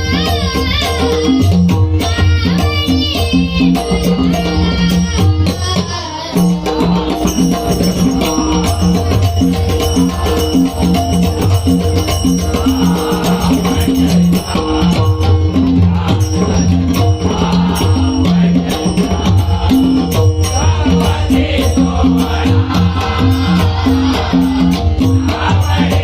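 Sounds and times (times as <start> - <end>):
jingling hand percussion: 0.0 - 26.0.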